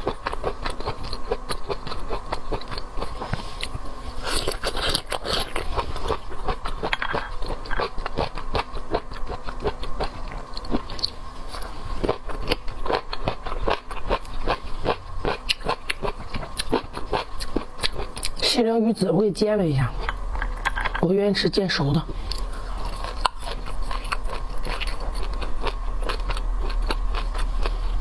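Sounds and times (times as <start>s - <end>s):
chewing and crunching: 0.0s - 18.5s, 22.1s - 28.0s.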